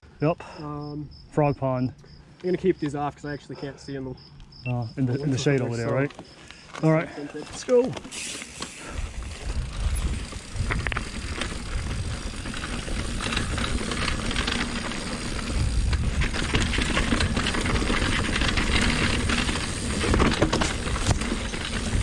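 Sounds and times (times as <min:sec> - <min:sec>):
bike tyres on rough ground: 0:05.4 - 0:22.0
bike chain clicks and rattles: 0:07.5 - 0:22.0
wind rumble on microphone: 0:08.9 - 0:22.0.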